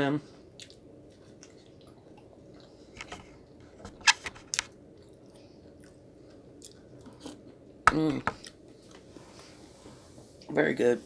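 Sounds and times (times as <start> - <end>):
person chewing: 5.0 - 7.4.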